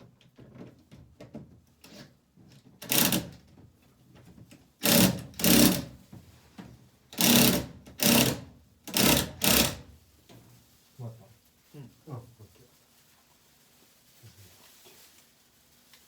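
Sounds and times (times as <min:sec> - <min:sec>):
power driver running screws: 0:02.8 - 0:03.3, 0:04.8 - 0:05.9, 0:07.2 - 0:09.8.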